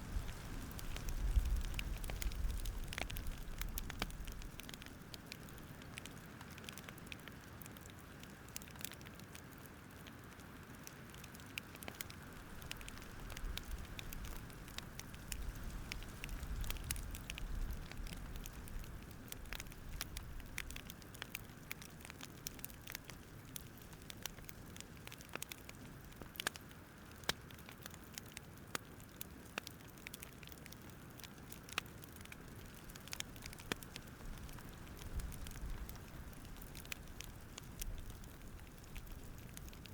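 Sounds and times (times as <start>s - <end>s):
campfire crackling: 0.0s - 39.9s.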